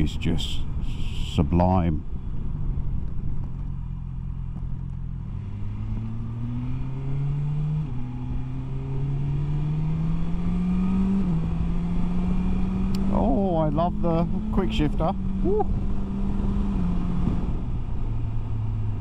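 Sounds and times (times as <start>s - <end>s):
motorcycle engine accelerating: 2.2s - 19.0s.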